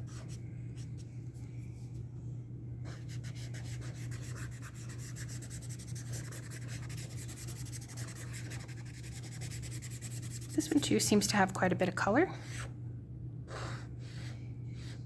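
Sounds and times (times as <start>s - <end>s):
steady low hum: 0.0s - 15.0s
pen nib scratching on paper: 2.9s - 10.8s, 12.4s - 12.7s.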